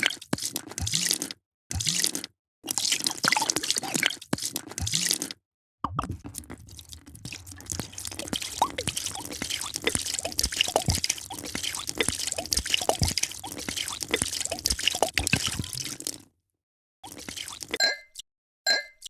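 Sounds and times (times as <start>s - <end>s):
dripping bubbling blips: 5.8s - 16.2s, 17.0s - 19.0s
drink pouring into a glass: 5.9s - 16.2s, 17.0s - 17.8s.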